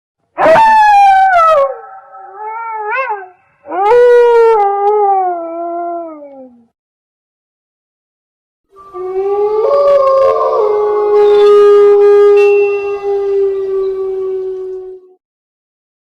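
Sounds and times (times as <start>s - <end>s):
dog howling: 0.4s - 6.6s, 8.9s - 15.2s.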